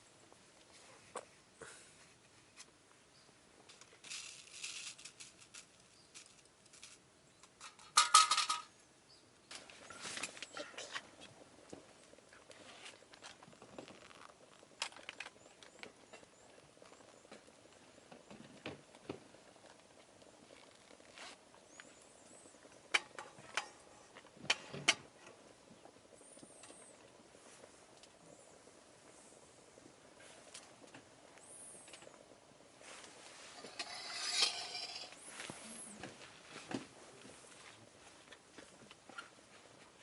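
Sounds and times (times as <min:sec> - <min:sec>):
camp gear clinking and rustling: 0:03.7 - 0:08.7, 0:09.5 - 0:11.2, 0:12.6 - 0:17.5, 0:32.8 - 0:37.5
metallic clatter: 0:33.5 - 0:35.2.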